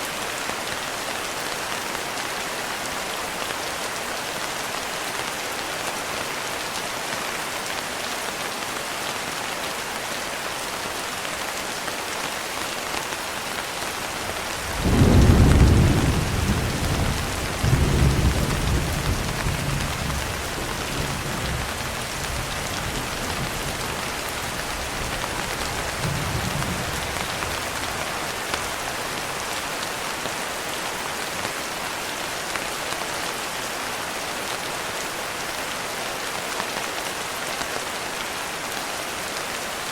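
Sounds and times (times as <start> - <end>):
steady rain: 0.0 - 39.9
thunder rumbling: 14.6 - 28.5.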